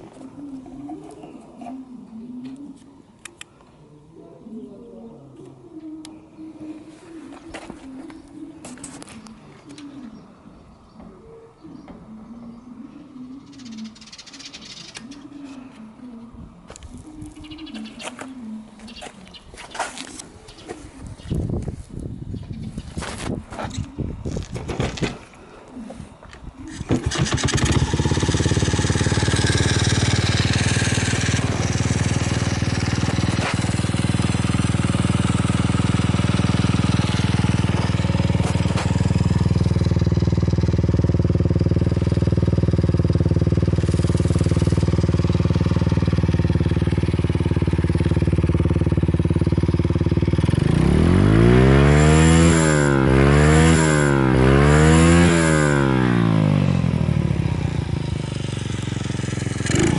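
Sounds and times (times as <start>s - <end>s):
small engine starting and idling: 26.6s - 59.9s
engine revving: 26.7s - 59.9s.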